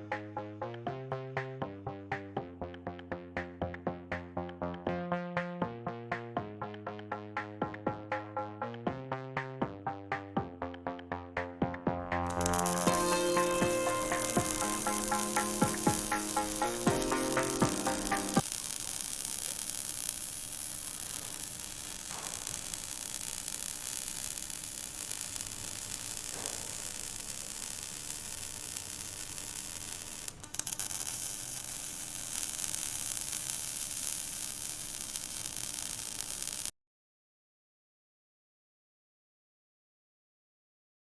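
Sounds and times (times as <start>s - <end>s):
welding arc crackling hiss: 12.3s - 36.7s.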